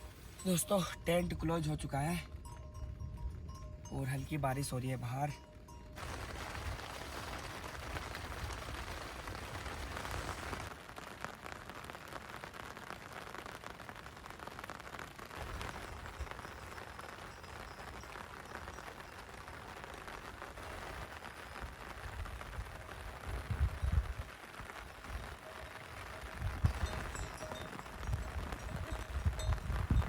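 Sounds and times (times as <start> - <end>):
light rain on tent fabric: 0.0 - 30.0.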